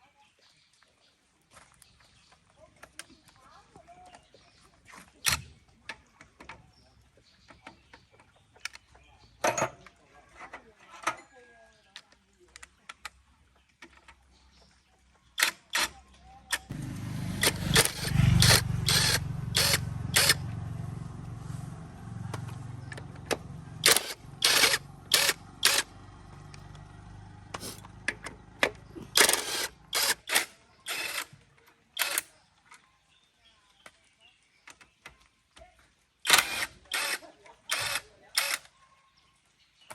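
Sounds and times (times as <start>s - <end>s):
engine running: 16.6s - 30.5s.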